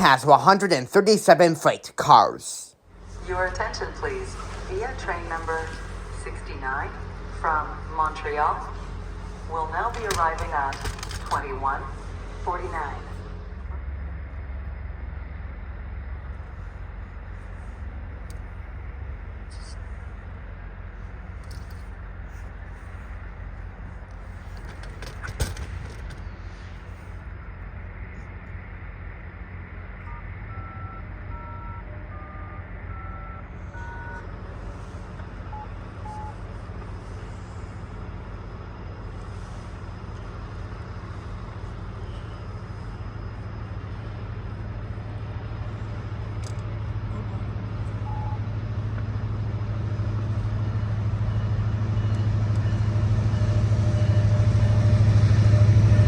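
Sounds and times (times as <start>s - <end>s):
diesel locomotive engine drone: 0.0s - 56.0s
electronic beeps: 35.5s - 36.4s.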